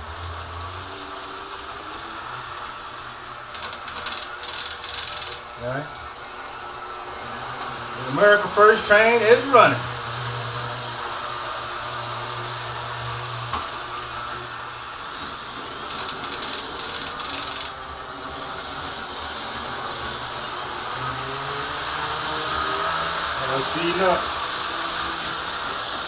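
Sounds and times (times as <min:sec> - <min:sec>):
model train motor whirring: 0:00.0 - 0:26.0
wheels on rails: 0:00.0 - 0:26.0.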